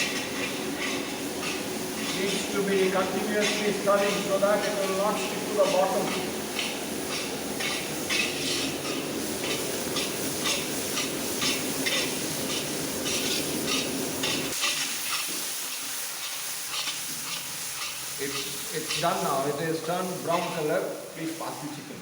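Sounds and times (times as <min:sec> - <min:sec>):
onions sizzling in oil: 0:00.0 - 0:22.0
utensil scraping pot bottom: 0:05.6 - 0:15.4.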